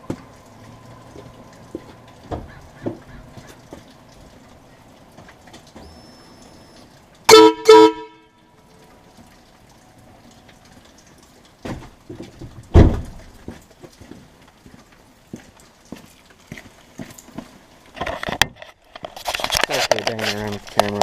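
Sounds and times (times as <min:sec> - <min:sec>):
air train horn blasts: 0:07.3 - 0:08.4.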